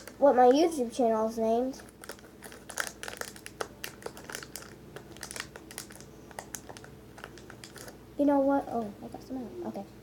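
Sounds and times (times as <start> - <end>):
plastic packaging crinkling: 0.0 - 0.6, 1.8 - 8.0.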